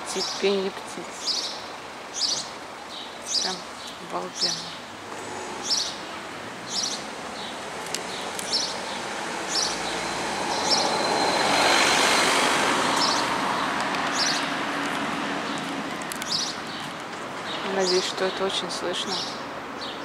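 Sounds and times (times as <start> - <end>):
street noise: 0.0 - 20.0
small bird chirping: 0.1 - 6.1, 6.7 - 11.0, 15.4 - 20.0
vehicle passing: 4.4 - 20.0.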